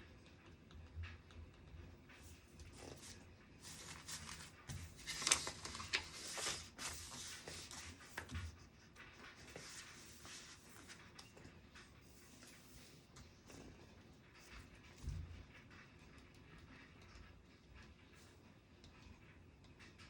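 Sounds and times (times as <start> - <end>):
paper rustling: 2.7 - 11.0
pen scratching on paper: 6.0 - 8.5, 9.2 - 11.0.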